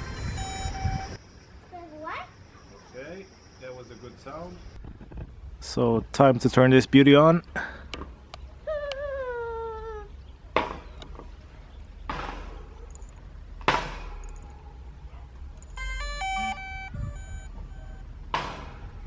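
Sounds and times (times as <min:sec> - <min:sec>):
electronic start-up beeps: 0:00.0 - 0:01.2, 0:15.6 - 0:18.1
sharp knocks: 0:10.6 - 0:11.3, 0:12.0 - 0:12.6, 0:13.6 - 0:14.3, 0:18.3 - 0:18.9.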